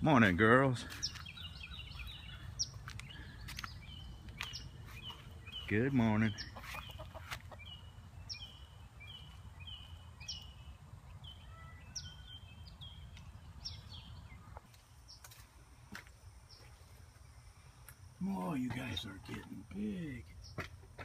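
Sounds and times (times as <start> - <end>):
bird chirping: 0.2 - 15.5.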